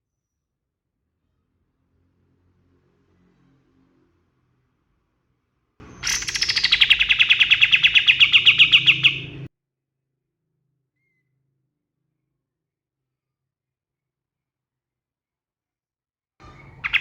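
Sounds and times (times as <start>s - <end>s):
songbird rapid trill: 5.8s - 9.5s, 16.4s - 17.0s.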